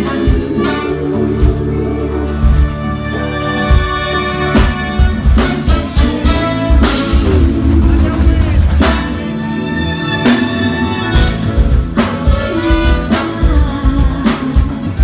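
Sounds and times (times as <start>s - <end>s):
sustained horn notes: 0.0s - 7.8s, 8.9s - 14.0s
drum kit beat: 0.0s - 15.0s
live band playing: 0.0s - 15.0s.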